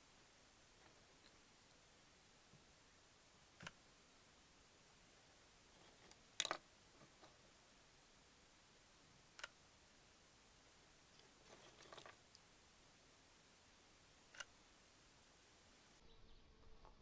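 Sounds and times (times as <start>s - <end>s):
faint steady hiss: 0.0s - 17.0s
faint crackle: 10.6s - 17.0s.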